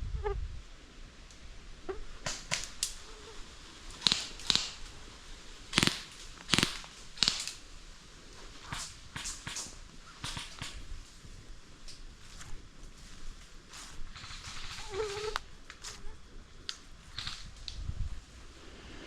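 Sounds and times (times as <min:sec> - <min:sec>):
airsoft gun shots: 0:04.0 - 0:04.9, 0:05.7 - 0:07.6, 0:08.6 - 0:10.9, 0:17.2 - 0:17.5.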